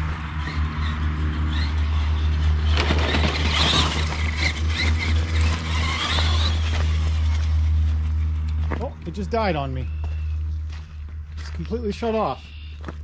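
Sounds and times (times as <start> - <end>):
tyres scraping gravel: 0.4 - 13.0
electric motor whine: 1.3 - 8.7.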